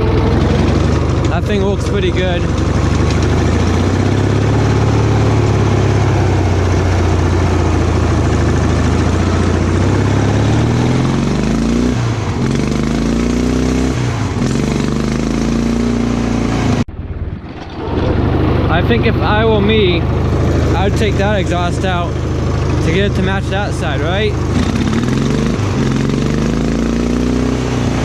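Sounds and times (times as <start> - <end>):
small engine running and revving: 0.0 - 16.8, 17.6 - 28.0.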